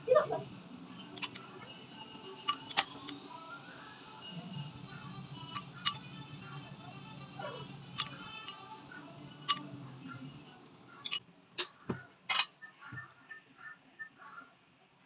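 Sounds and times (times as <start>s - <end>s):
faint background music: 0.0s - 15.0s
utensils and dishes clicking: 1.0s - 1.7s, 2.4s - 3.3s, 5.4s - 6.2s, 7.8s - 8.7s, 9.4s - 9.8s, 11.0s - 12.6s.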